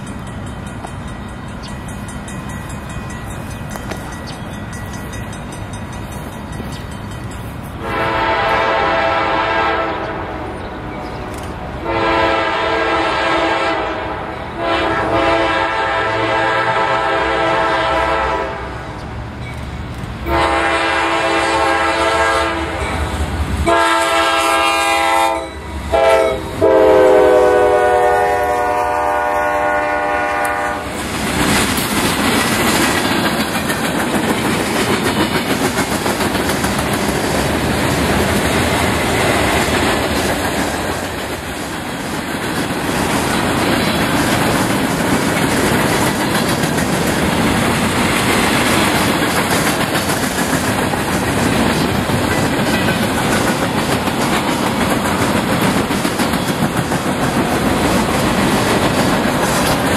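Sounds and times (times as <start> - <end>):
locomotive air horn blasts: 7.8 - 10.5, 11.8 - 18.9, 20.3 - 23.0, 23.6 - 31.0
freight cars rumbling and clacking: 30.9 - 59.9.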